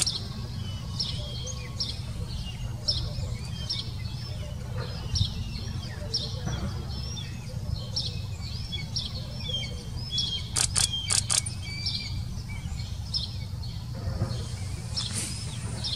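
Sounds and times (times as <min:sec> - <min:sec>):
sharp clicks: 0:00.0 - 0:00.2, 0:10.5 - 0:11.6
bird chirping: 0:00.0 - 0:15.9.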